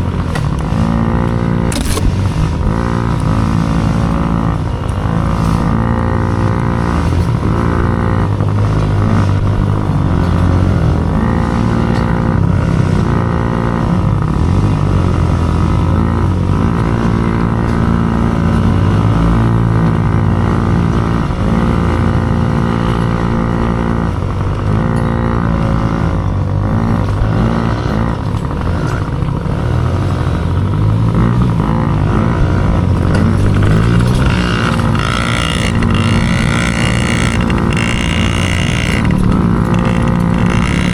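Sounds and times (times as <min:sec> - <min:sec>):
small dirt bike engine revving: 0:00.0 - 0:40.9.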